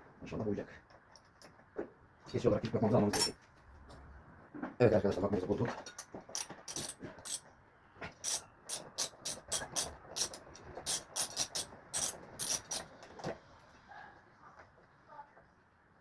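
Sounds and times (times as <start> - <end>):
ratchet wrench clicking: 6.4 - 7.4, 8.2 - 12.9.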